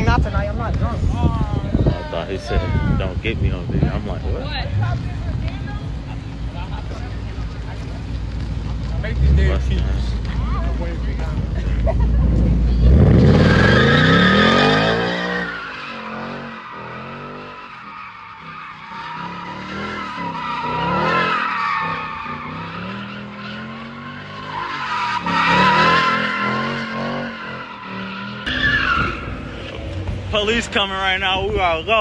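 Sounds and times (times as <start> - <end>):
car engine revving: 3.1 - 30.5
car tires squealing: 12.2 - 30.1.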